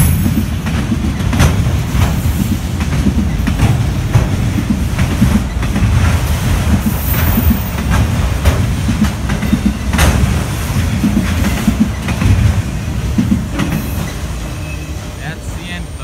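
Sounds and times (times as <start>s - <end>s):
wheels clickety-clack over joints: 0.0s - 14.8s
freight cars rumbling on rails: 0.0s - 16.0s.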